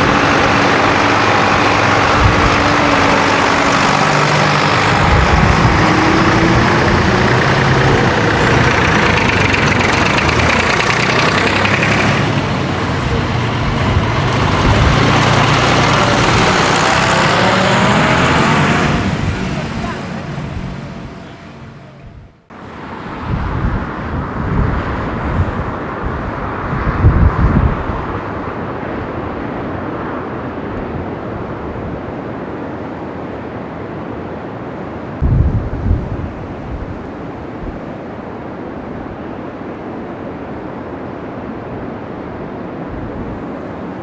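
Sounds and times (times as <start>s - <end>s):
wind buffeting microphone: 0.0s - 21.4s, 22.0s - 44.0s
tractor engines rumbling: 0.0s - 32.7s.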